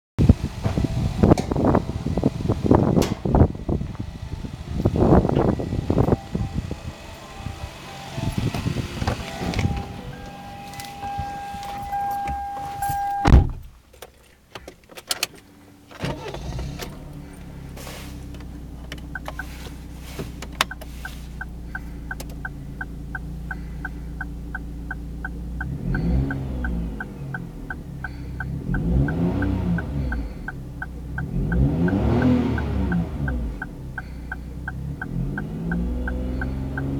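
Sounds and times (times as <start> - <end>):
engine revving: 0.2 - 13.3, 16.0 - 36.9
car engine starting and idling: 0.2 - 36.9
light regular ticking: 18.3 - 36.9.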